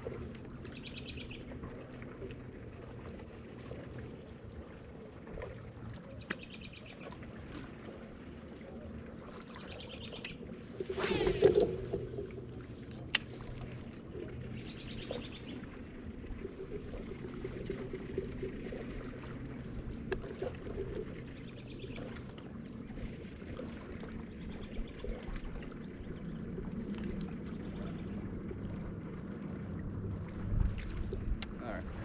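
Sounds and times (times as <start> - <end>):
water washing around kayak: 10.6 - 14.1.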